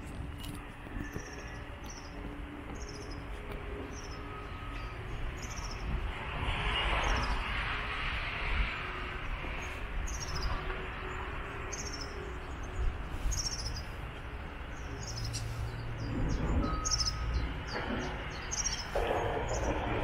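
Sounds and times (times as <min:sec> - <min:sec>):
small birds chirping: 0:00.9 - 0:06.0, 0:09.5 - 0:20.0.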